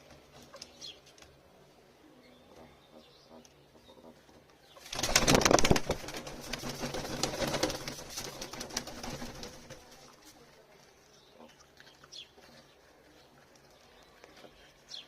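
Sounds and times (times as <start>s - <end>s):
soft rustling and fluttering: 4.0s - 11.6s
pigeon wings flapping: 4.8s - 10.1s.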